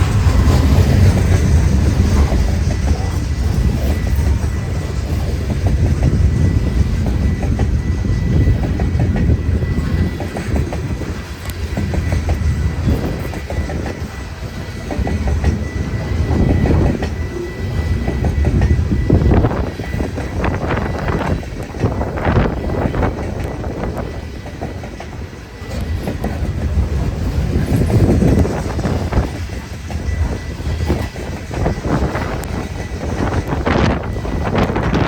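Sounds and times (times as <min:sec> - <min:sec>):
freight train rumbling: 0:00.0 - 0:35.0
wheels clicking over rail joints: 0:00.0 - 0:35.0.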